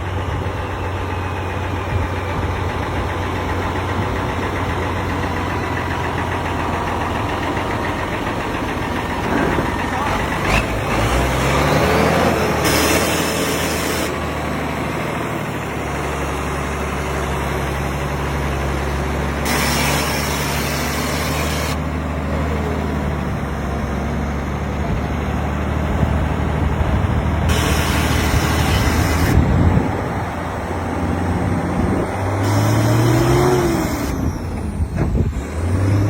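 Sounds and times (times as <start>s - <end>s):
truck engine running: 0.0s - 36.0s
bursts of hiss: 19.4s - 21.8s, 27.5s - 29.4s.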